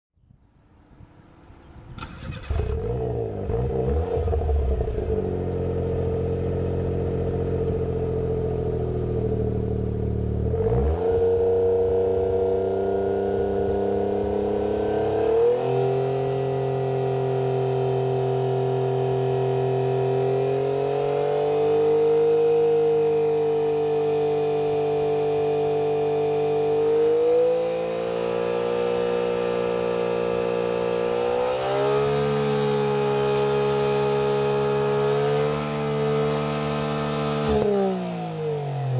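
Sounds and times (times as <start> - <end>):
car engine starting and idling: 1.6 - 10.6.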